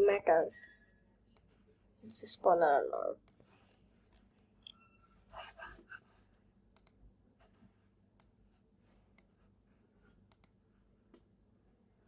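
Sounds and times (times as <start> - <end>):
computer mouse clicks: 3.2 - 3.5, 6.7 - 7.0, 8.1 - 8.4, 9.1 - 9.4, 10.1 - 11.3.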